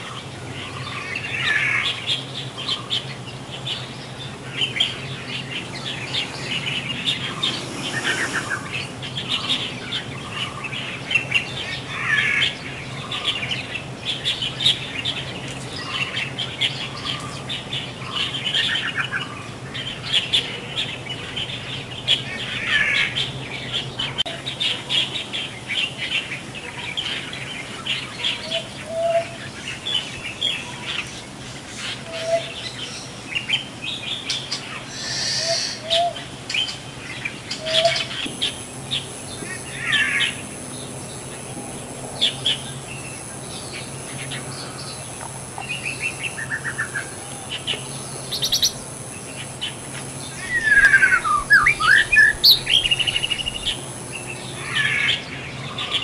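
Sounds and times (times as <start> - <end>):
small birds chirping: 0.0 - 56.0
rattling bird trills: 3.9 - 10.6.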